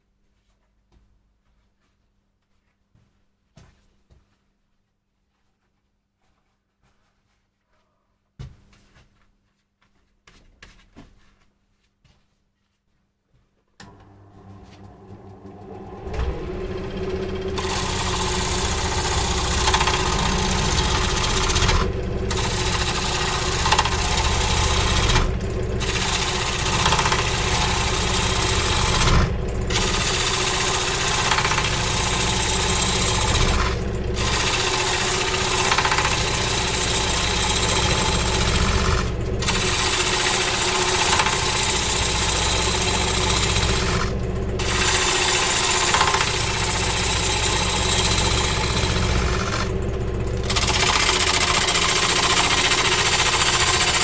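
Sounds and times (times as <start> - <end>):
loud hissing cutting noise: 13.8 - 54.0
power tool motor: 13.8 - 54.0.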